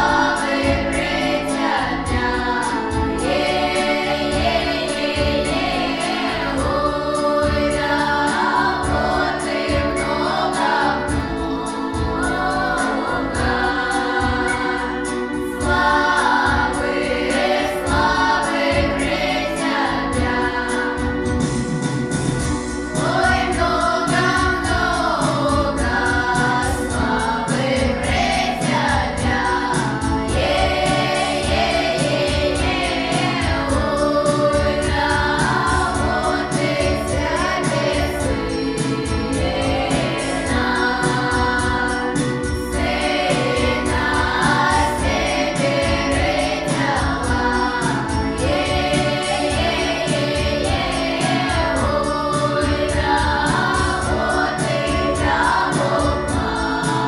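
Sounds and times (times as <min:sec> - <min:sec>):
choir singing: 0:00.0 - 0:57.0
instrumental accompaniment with beat: 0:00.0 - 0:57.0.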